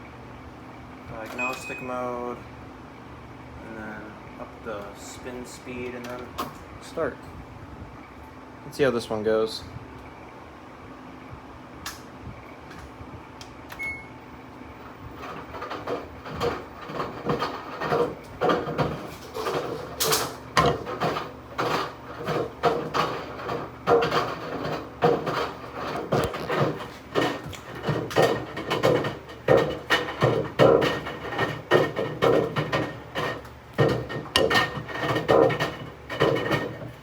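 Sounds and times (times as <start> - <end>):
short beep: 1.4 - 1.9, 13.8 - 14.1
washing machine drum turning: 15.2 - 37.0.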